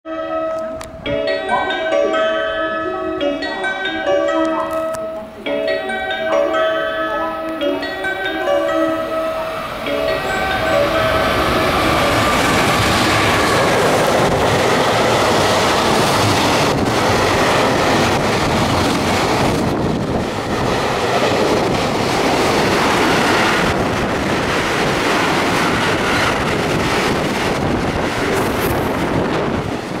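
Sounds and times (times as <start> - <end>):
freight train passing: 0.1 - 30.0.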